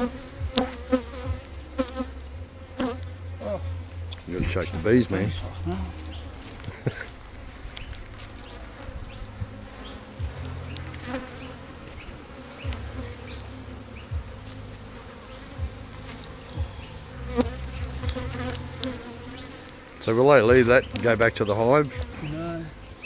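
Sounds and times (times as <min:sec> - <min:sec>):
honeybees buzzing: 0:00.0 - 0:23.0.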